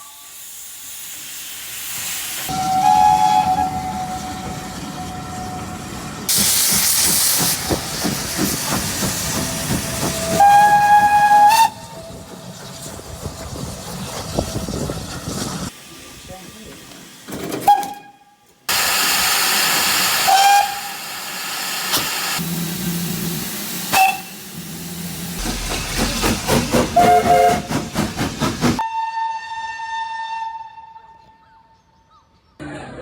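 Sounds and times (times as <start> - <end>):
loud steam hiss: 0.0 - 3.3, 6.3 - 17.3, 18.7 - 28.8
steam locomotive whistle: 2.5 - 7.0, 9.5 - 12.2, 17.6 - 22.0, 23.9 - 24.5, 26.9 - 27.9, 28.8 - 31.3
rhythmic pulsing: 25.4 - 28.8.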